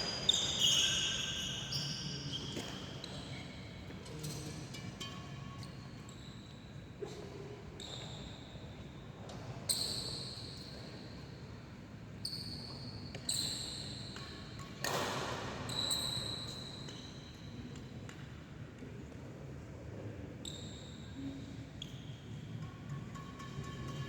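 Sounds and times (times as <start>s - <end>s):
shoes squeaking on court: 0.0s - 3.6s, 7.8s - 8.7s, 12.2s - 17.7s.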